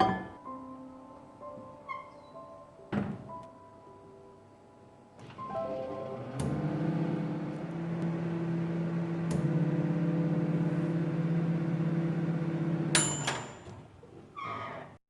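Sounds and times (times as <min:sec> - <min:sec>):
microwave oven humming: 0:05.8 - 0:13.4.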